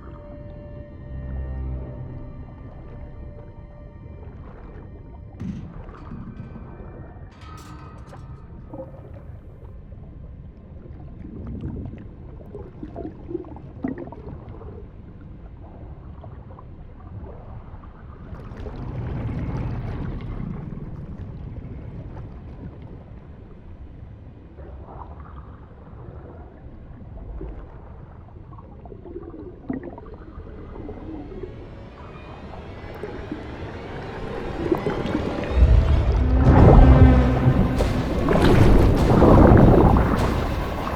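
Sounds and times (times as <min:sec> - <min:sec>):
faint water gurgling: 0:00.0 - 0:40.9
rumbling floodwater and storm: 0:31.7 - 0:40.9.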